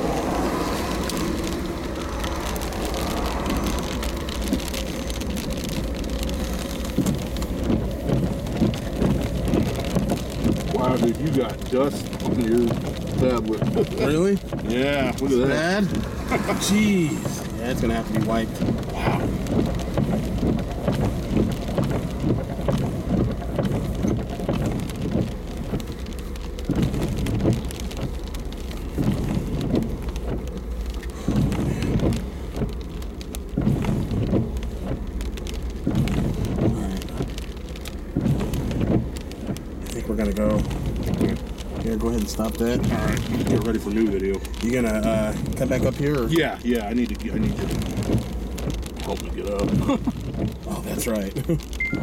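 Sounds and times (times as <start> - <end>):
gusty wind: 0.0 - 25.6
low wind rumble: 0.0 - 52.0
rain striking a surface: 0.0 - 52.0.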